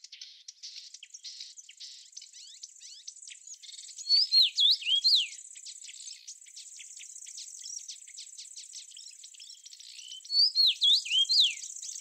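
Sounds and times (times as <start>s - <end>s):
songbird whistling: 4.0s - 5.4s, 10.0s - 12.0s.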